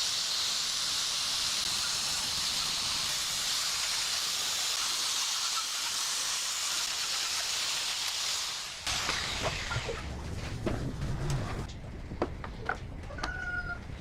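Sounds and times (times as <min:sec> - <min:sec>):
compressed air hissing: 0:00.0 - 0:09.0.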